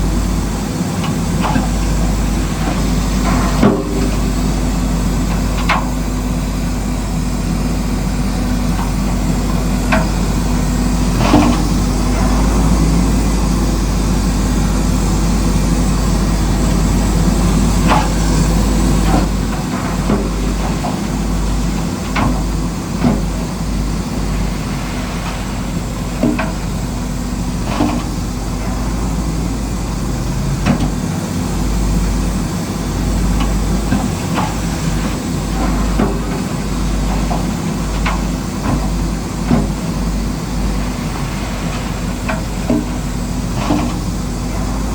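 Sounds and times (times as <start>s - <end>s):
earthmoving machine engine: 0.0s - 44.9s.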